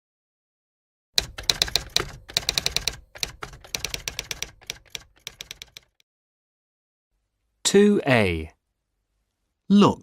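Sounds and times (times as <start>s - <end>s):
typewriter keys clattering: 1.2s - 6.0s.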